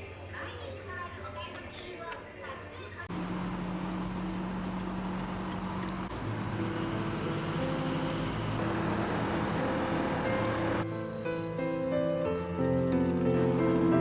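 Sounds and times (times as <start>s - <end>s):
vehicle road noise: 3.1s - 14.0s
background music: 6.2s - 14.0s.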